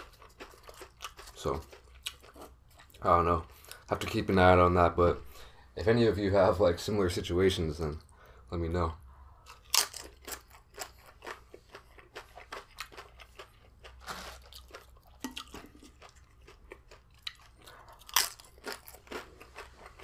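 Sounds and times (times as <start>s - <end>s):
chips being chewed: 0.0s - 3.8s, 9.5s - 20.0s
loud crunch of chip bitten: 9.5s - 20.0s.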